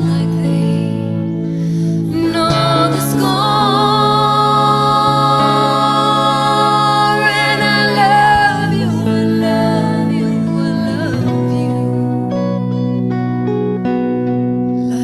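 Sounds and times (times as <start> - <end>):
bass: 0.0 - 15.0
piano: 0.0 - 15.0.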